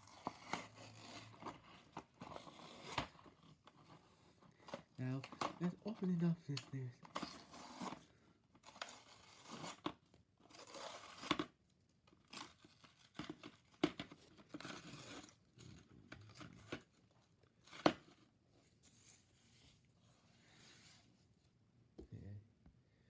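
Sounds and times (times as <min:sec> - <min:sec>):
packaging tearing and crinkling: 0:00.0 - 0:03.8, 0:10.5 - 0:11.5, 0:12.2 - 0:15.4.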